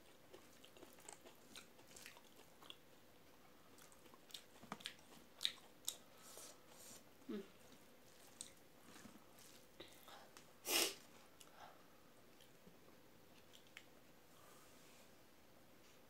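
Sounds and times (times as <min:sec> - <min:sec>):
chewing and wet mouth clicks: 0:00.3 - 0:02.8, 0:03.8 - 0:06.0, 0:13.3 - 0:13.9.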